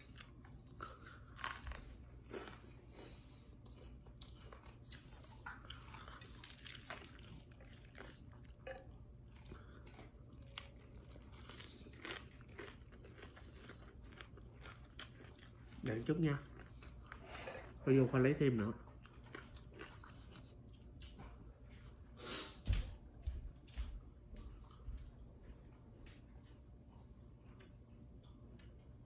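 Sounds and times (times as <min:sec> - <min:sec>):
crisp crunches of chewing: 0:00.0 - 0:21.1.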